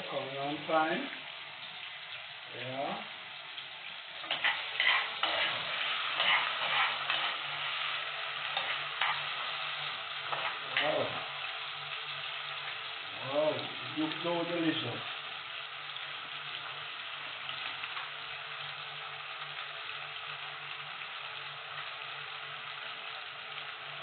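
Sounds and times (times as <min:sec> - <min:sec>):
vegetables sizzling in hot oil: 0:00.0 - 0:24.0
stirring scrapes against pot: 0:04.2 - 0:07.6, 0:08.5 - 0:09.3.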